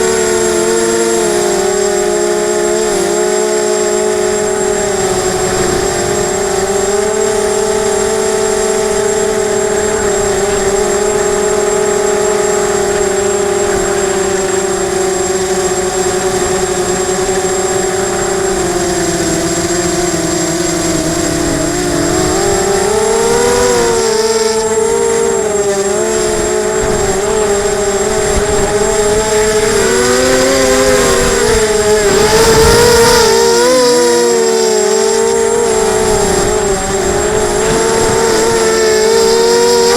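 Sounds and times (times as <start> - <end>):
drone propellers whining: 0.0 - 39.9.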